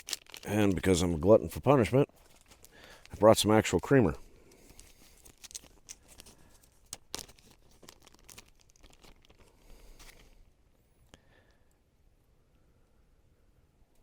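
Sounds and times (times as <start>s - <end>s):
crinkly packaging tearing: 0.0s - 3.9s, 4.7s - 10.3s.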